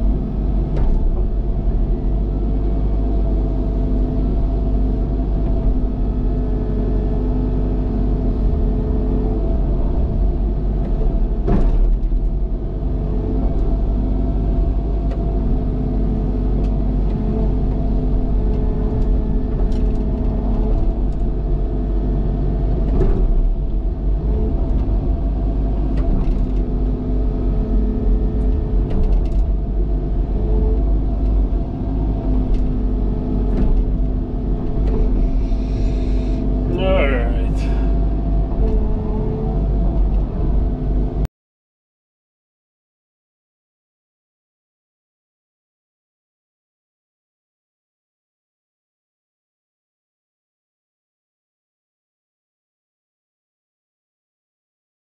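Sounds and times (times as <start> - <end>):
excavator diesel engine running: 23.8 - 41.2.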